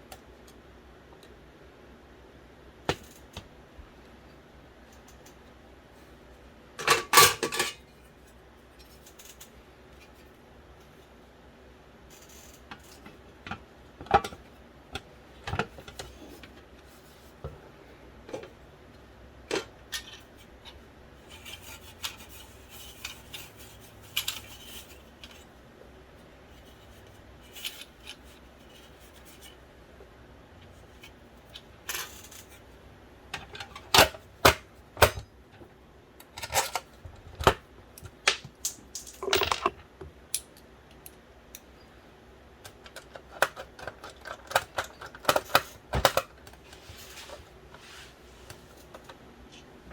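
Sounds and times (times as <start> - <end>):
small plastic and metal parts clicking: 42.6 - 46.4.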